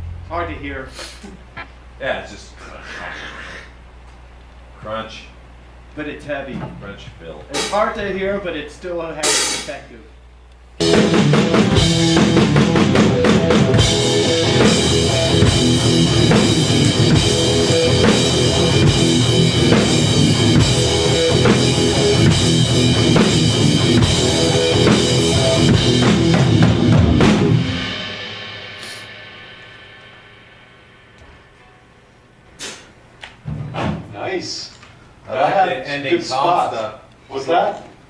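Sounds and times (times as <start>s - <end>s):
drum kit: 7.5s - 8.2s, 9.2s - 9.8s, 10.8s - 31.8s, 32.6s - 34.3s
distorted electric guitar: 10.8s - 31.6s
heavy metal band playing: 10.8s - 31.6s.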